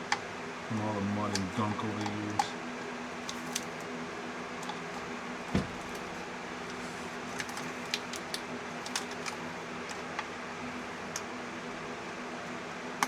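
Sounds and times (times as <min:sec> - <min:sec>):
steady background hum: 0:00.0 - 0:13.0
dull thump: 0:05.5 - 0:06.2.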